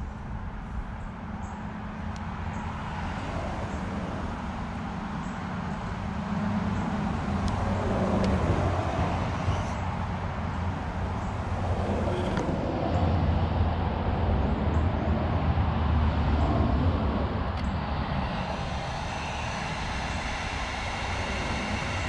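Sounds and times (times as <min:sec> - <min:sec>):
heat gun blowing: 0:18.0 - 0:22.0.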